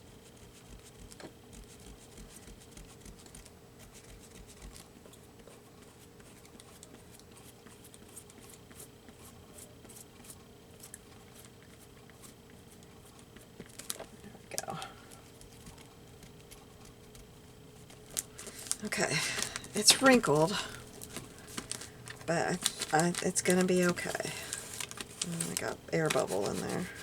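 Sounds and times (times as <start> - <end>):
faint steady hum: 0.0 - 27.0
hands rubbing paper: 15.3 - 27.0.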